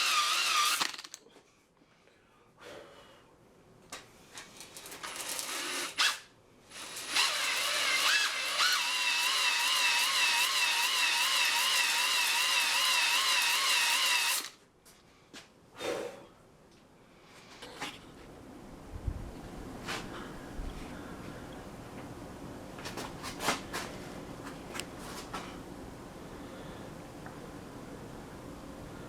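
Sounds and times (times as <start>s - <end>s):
electric drill whining: 0.0s - 1.1s, 6.8s - 14.5s.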